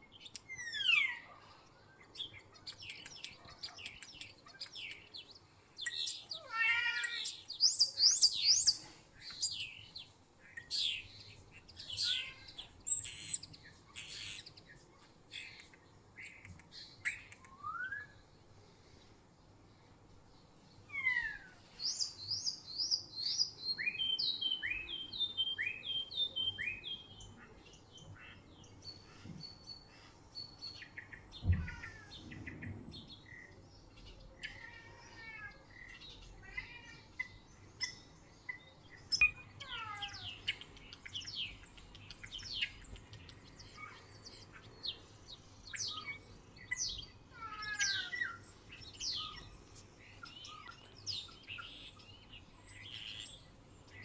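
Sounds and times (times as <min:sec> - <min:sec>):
songbirds singing: 0:00.0 - 0:54.0
low thump: 0:31.4 - 0:31.8.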